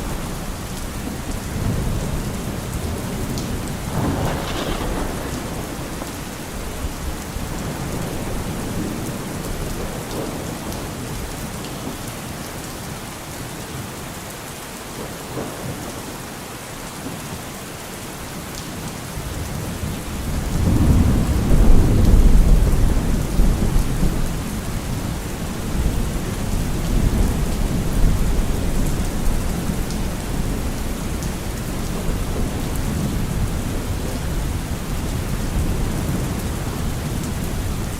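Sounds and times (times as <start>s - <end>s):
thunder rumbling: 0.0s - 11.3s, 19.8s - 37.9s
steady rain falling: 0.0s - 37.9s.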